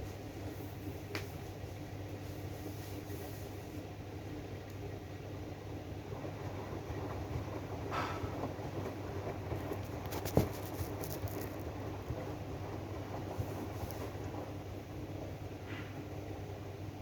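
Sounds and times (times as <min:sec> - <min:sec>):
washing machine drum humming: 0:00.0 - 0:17.0.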